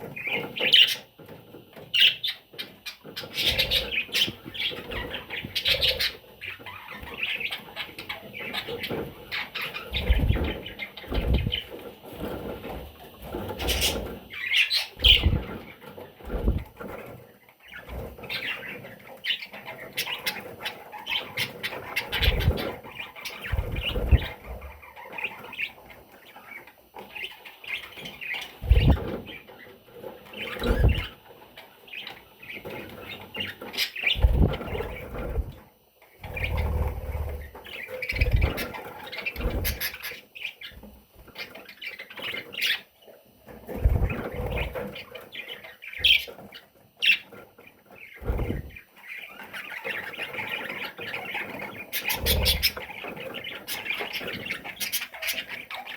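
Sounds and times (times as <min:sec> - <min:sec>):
bird chicks chirping: 0:00.0 - 0:55.9
low thumps and rustles: 0:10.0 - 0:14.3, 0:16.2 - 0:16.9, 0:23.4 - 0:24.8, 0:34.2 - 0:35.6, 0:48.2 - 0:48.8.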